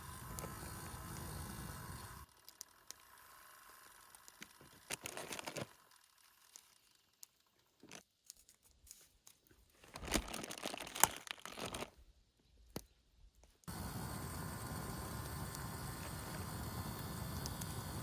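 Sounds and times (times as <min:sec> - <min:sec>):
crunching and crinkling: 0:04.3 - 0:12.1.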